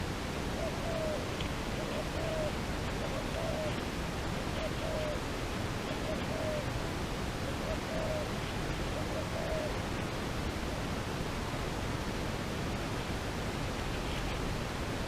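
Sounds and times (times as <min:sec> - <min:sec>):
steady rushing outdoor noise: 0:00.0 - 0:15.0
soft hooting bird calls: 0:00.5 - 0:06.8, 0:07.4 - 0:10.9.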